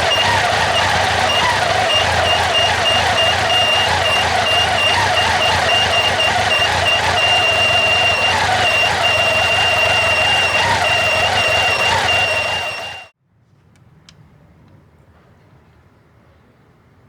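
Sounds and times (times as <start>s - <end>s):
water pump squeaking: 0.0s - 13.0s
motorcycle engine running: 0.0s - 13.1s.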